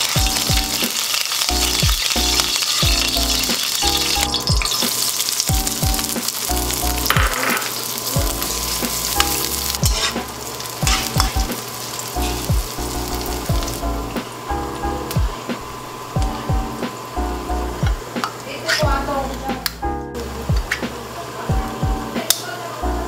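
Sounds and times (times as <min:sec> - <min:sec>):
electronic background music: 0:00.0 - 0:18.2, 0:21.5 - 0:22.2
onions sizzling in oil: 0:00.0 - 0:23.0.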